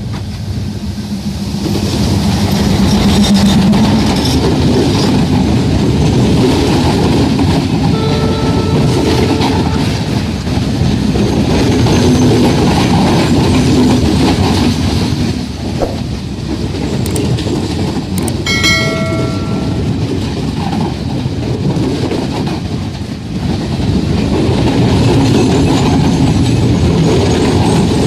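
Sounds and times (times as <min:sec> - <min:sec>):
train wheels clattering over rails: 0:00.0 - 0:08.0, 0:16.5 - 0:28.0
train horn: 0:07.7 - 0:10.5.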